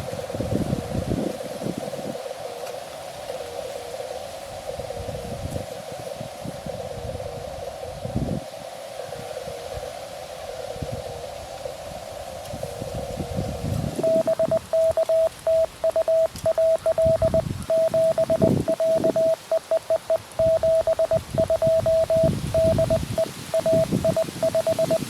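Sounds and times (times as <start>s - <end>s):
receiver hiss: 0.0s - 25.0s
morse code tone: 14.0s - 25.0s.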